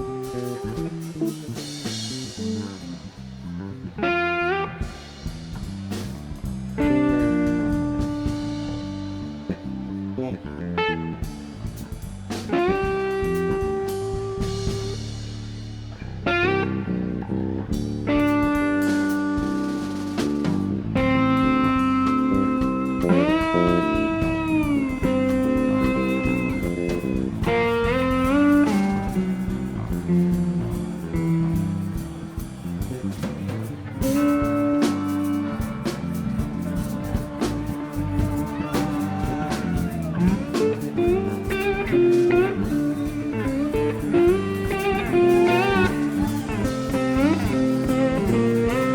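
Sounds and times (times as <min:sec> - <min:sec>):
blues rock band playing: 0:00.0 - 0:48.9
drum kit: 0:00.0 - 0:48.9
electric guitar sliding notes: 0:00.0 - 0:48.9.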